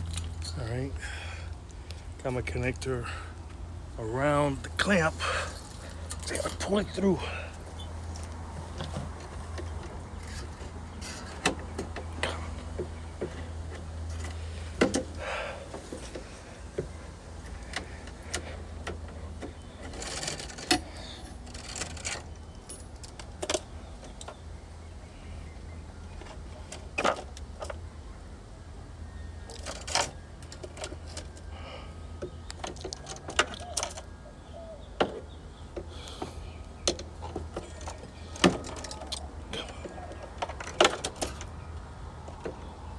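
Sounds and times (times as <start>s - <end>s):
steady low hum: 0.0s - 29.5s
clicks and metallic rattles: 4.7s - 24.5s, 32.2s - 34.1s, 35.0s - 42.9s.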